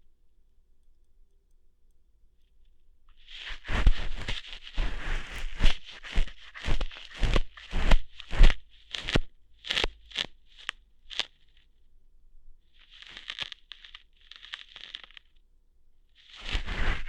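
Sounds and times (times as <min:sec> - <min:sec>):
crackling tearing rustles: 0:03.2 - 0:11.6, 0:12.8 - 0:15.3, 0:16.2 - 0:17.0.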